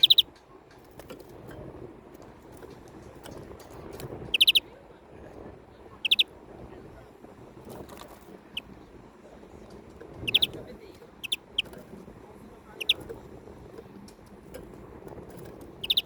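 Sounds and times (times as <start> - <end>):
bird giving sharp chirps: 0.0 - 0.3, 4.3 - 4.6, 6.0 - 6.2, 10.2 - 10.5, 11.2 - 11.7, 12.8 - 13.0, 15.8 - 16.0
low steady background noise: 0.0 - 16.0.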